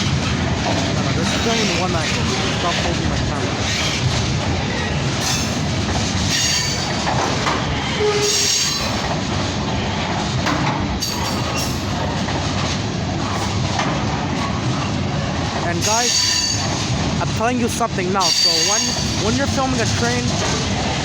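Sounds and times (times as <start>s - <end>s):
train wheels rumbling on rails: 0.0s - 21.0s
wheels squealing: 6.3s - 9.2s, 15.8s - 16.8s.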